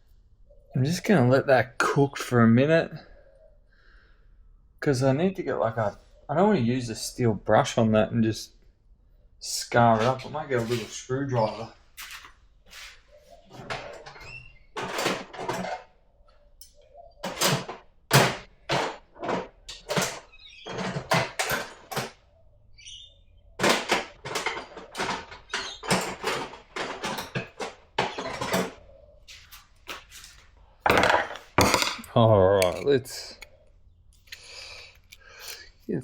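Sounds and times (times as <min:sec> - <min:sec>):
metal tools knocking and scraping: 0:09.8 - 0:12.3, 0:13.4 - 0:15.9, 0:16.6 - 0:22.2, 0:23.6 - 0:28.8, 0:30.8 - 0:33.6, 0:34.2 - 0:35.9.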